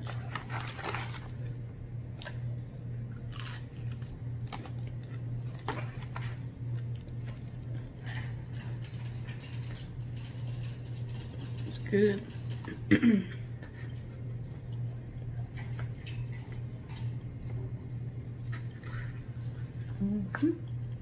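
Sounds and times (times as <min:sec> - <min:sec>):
person chewing crispy food: 0:00.0 - 0:01.6, 0:03.2 - 0:08.3
steady low hum: 0:00.0 - 0:21.0.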